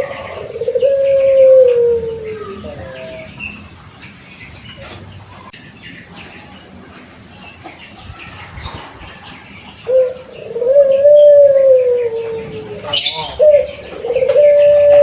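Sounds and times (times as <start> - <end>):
dove cooing: 0.0 - 3.6, 9.8 - 15.0.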